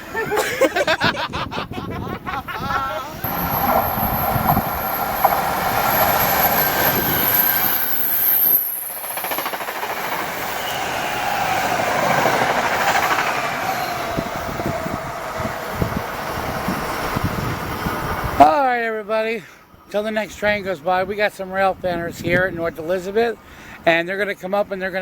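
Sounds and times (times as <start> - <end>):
passenger train rumbling past: 1.9 - 18.6
high whine sliding down: 3.0 - 18.4.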